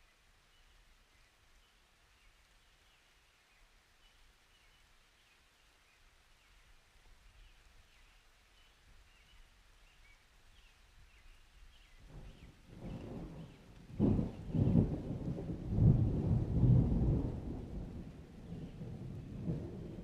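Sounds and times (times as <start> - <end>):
small birds chirping: 0.4 - 15.0.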